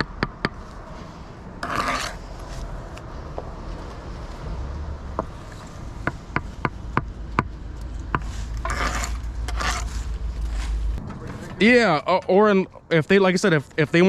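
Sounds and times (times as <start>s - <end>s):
steady low rumble: 0.0s - 13.1s
tools scraping on brick: 1.6s - 2.6s, 8.1s - 10.8s.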